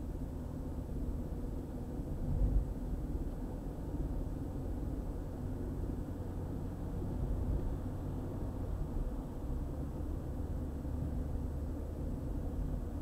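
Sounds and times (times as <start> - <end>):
tyres and engine rumble: 0.0 - 13.0.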